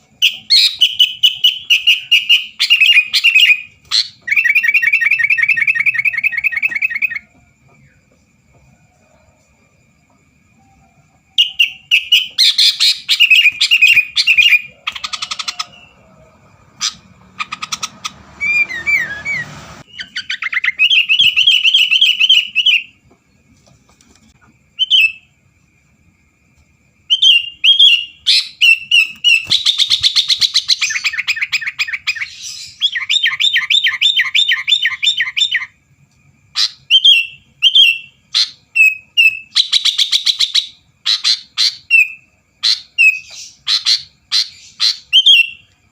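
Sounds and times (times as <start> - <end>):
bird chirps and trills: 0.0 - 7.3, 11.4 - 23.0, 27.1 - 35.7.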